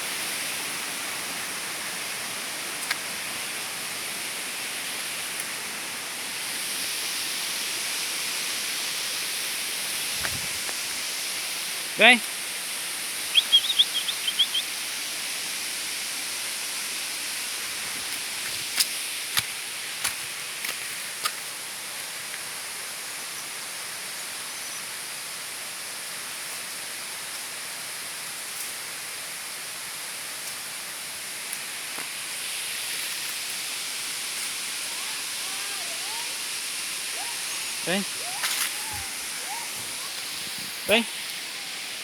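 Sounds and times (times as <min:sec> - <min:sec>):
waterfall rushing: 0:00.0 - 0:18.5, 0:31.0 - 0:42.0.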